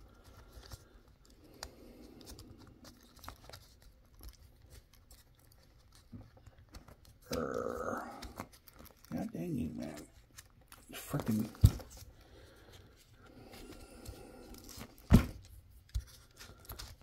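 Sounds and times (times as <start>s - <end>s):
fingers handling plastic parts: 0.0s - 17.0s
person muttering: 7.2s - 8.4s.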